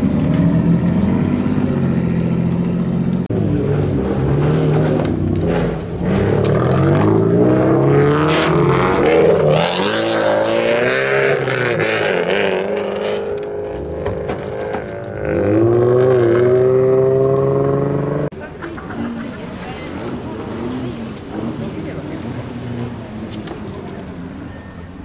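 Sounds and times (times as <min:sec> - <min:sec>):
car engine revving: 0:00.0 - 0:18.3.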